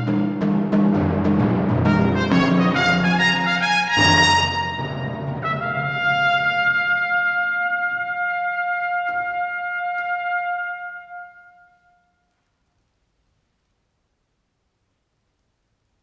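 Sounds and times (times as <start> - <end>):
trumpet holding long note: 0.0 - 0.6, 1.8 - 12.2
soft timpani strokes: 0.0 - 11.8.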